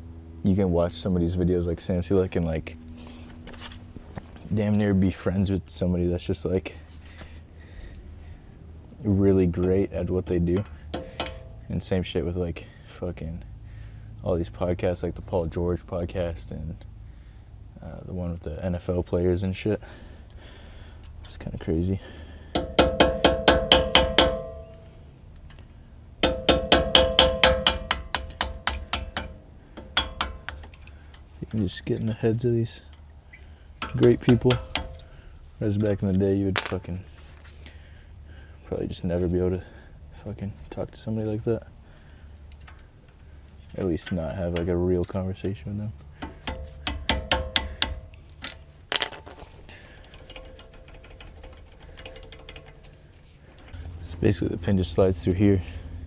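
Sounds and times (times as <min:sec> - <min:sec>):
hammer striking metal: 0:10.9 - 0:11.6, 0:22.6 - 0:24.8, 0:26.2 - 0:30.7, 0:33.8 - 0:35.1, 0:46.2 - 0:48.2.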